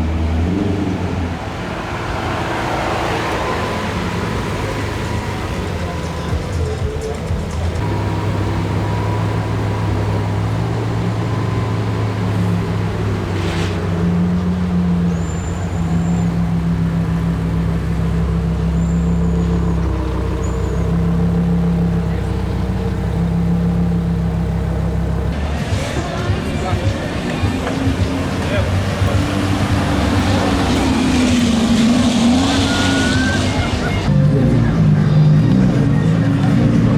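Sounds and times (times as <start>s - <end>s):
car engine running at low revs: 0.0s - 36.9s.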